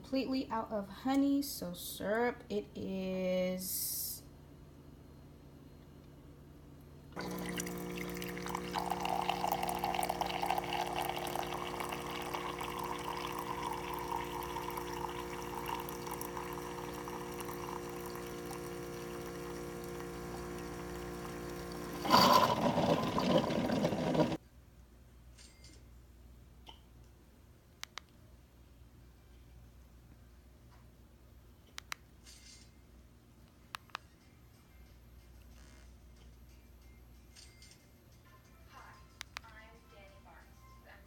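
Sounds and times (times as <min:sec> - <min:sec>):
constant hum: 0:00.0 - 0:24.4
water running: 0:07.2 - 0:24.4.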